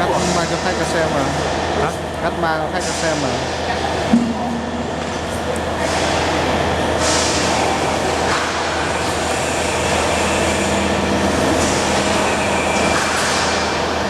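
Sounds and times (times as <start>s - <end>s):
laser cutting machine humming: 0.0s - 14.0s
steady machine tone: 0.0s - 14.0s.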